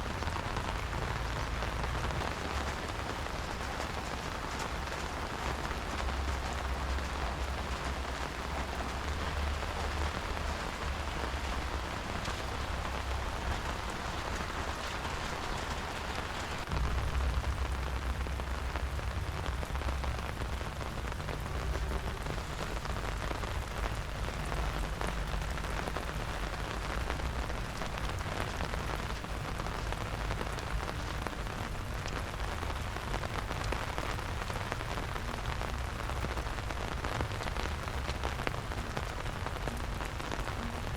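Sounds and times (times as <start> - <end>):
low rumble: 0.0 - 32.1
steady rain falling: 0.0 - 40.9.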